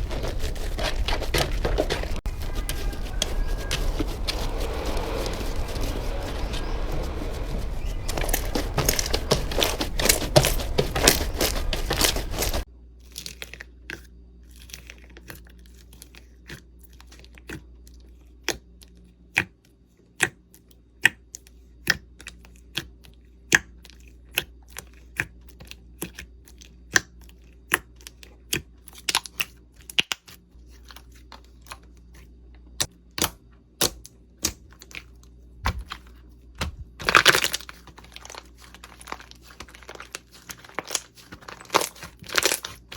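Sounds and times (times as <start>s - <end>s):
slime crinkly crunching: 37.0s - 42.9s.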